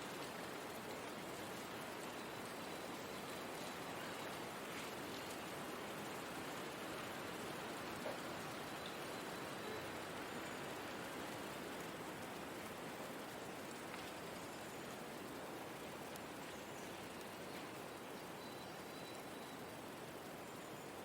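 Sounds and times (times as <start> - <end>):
steady wind hiss: 0.0 - 21.0.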